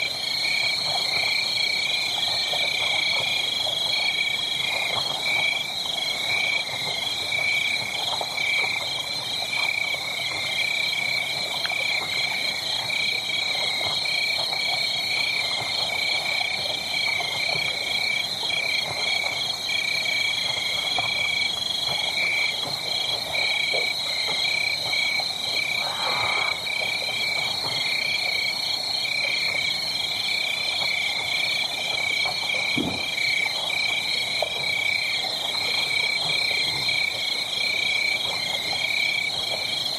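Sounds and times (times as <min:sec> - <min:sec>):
wood fire crackling: 0:00.8 - 0:29.8
pulsing high-pitched animal calls: 0:25.6 - 0:26.8.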